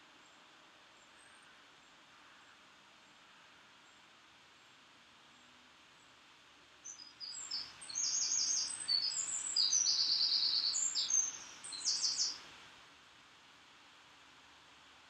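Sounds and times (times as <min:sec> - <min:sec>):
songbird chirping and trilling: 0:06.8 - 0:12.4.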